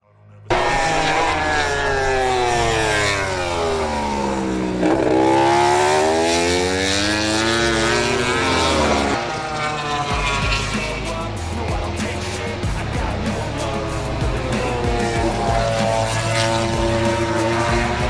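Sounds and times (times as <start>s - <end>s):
racing motorcycle engine revving: 0.5s - 18.0s.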